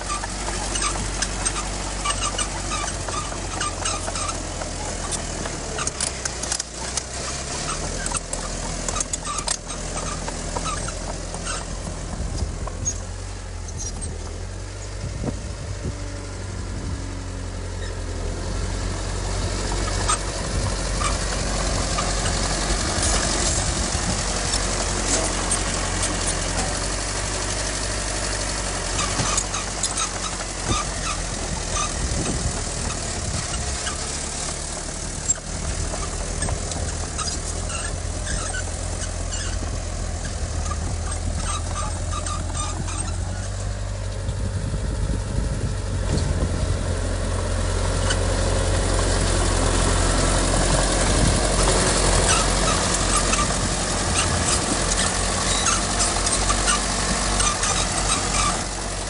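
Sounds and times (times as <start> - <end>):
high-pitched squeaks and clicks: 0.0 - 13.1, 21.0 - 26.9, 29.0 - 34.2, 35.2 - 44.3, 51.6 - 58.8
diesel machinery engine drone: 0.0 - 59.0.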